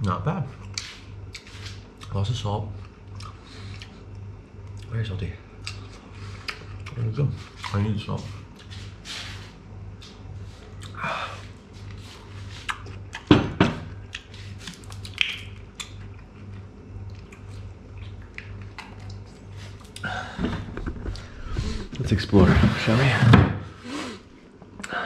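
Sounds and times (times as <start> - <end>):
steady low hum: 0.0 - 25.0
person chewing: 0.6 - 2.2, 2.8 - 4.9, 5.6 - 7.8, 10.0 - 13.3, 13.9 - 20.1
mouth clicks: 15.0 - 16.0.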